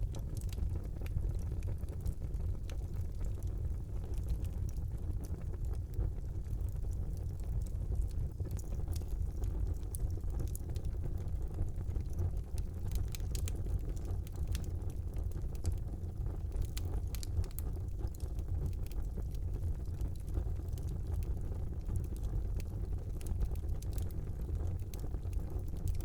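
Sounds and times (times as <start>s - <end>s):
fire crackling and popping: 0.0s - 26.0s
fire rumbling: 0.0s - 26.0s.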